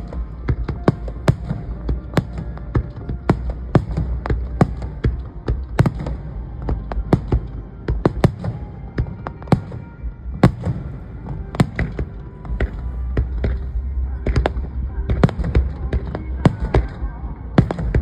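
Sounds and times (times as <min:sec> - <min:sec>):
fireworks bangs: 0:00.0 - 0:18.0
low rumble: 0:10.0 - 0:18.0.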